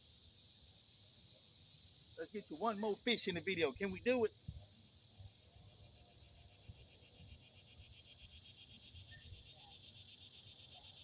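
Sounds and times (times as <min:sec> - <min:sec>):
high steady hiss: 0:00.0 - 0:11.0
insects pulsing trill: 0:00.0 - 0:11.0.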